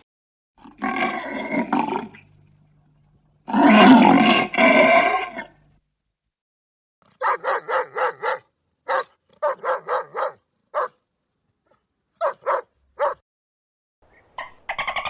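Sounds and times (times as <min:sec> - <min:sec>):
dog barking: 0:07.1 - 0:11.0, 0:11.7 - 0:13.2.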